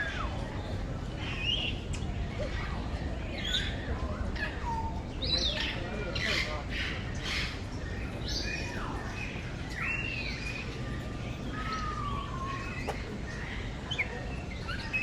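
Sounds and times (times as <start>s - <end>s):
birds calling and chirping: 0.0s - 15.0s.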